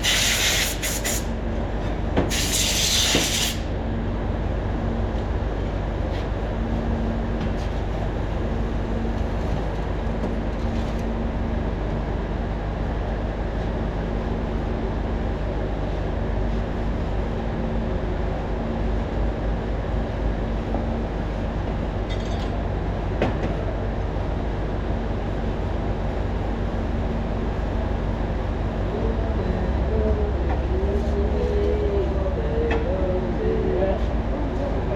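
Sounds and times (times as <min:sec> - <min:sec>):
machinery droning: 0:25.0 - 0:34.9
faint wavering hum: 0:26.5 - 0:34.9.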